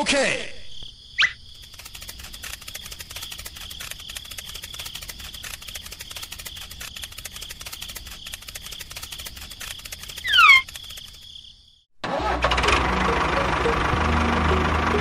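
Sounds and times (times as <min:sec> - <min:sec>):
crickets chirping: 0:00.2 - 0:11.9.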